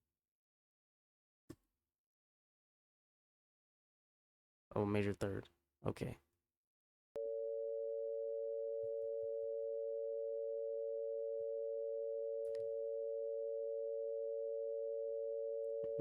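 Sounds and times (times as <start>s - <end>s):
two pure sine tones: 7.2s - 16.0s.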